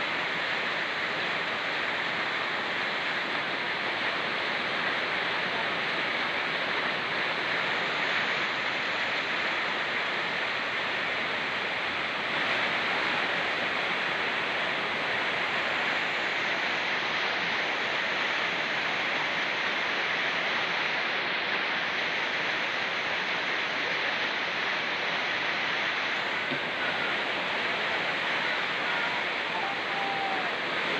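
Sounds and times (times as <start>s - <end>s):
fast-flowing stream: 0.0s - 30.9s
rain falling: 22.6s - 30.9s.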